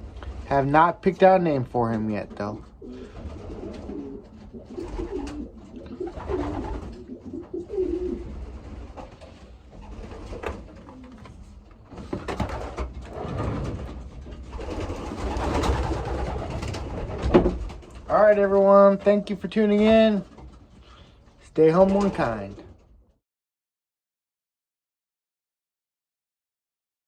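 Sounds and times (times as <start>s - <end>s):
rustling noise: 0.0s - 22.6s
pigeons cooing: 2.6s - 13.6s.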